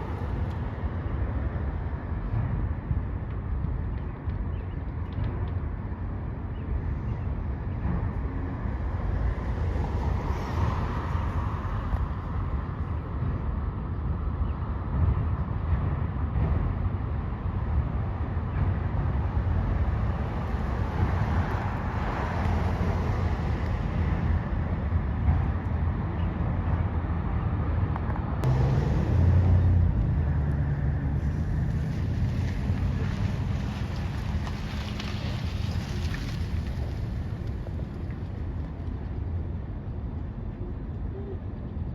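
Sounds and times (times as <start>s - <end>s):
freight train wheels rumbling on rail: 14.8s - 36.2s.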